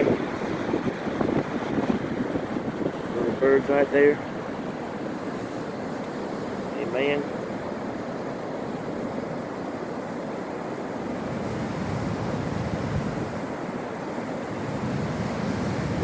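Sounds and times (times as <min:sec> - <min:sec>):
wind buffeting microphone: 0:00.0 - 0:06.8, 0:11.0 - 0:16.0
ocean waves breaking: 0:00.0 - 0:16.0.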